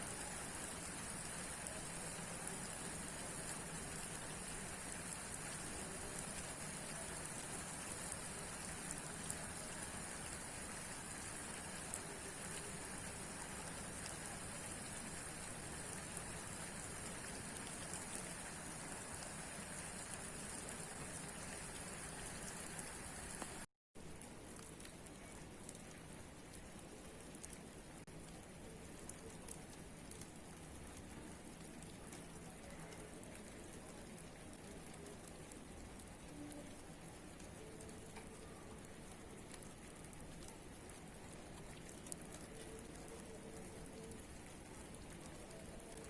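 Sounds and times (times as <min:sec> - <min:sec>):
raindrops ticking: 0:00.0 - 0:46.0
steady rain hiss: 0:00.0 - 0:46.0.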